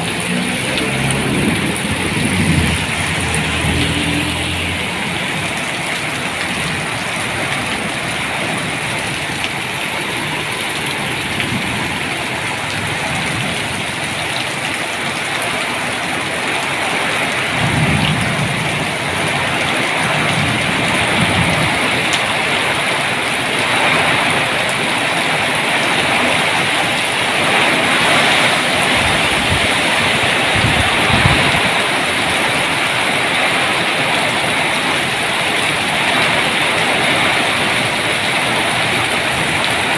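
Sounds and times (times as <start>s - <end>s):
low rumbles: 0.0s - 9.4s
heavy rain falling: 0.0s - 39.9s.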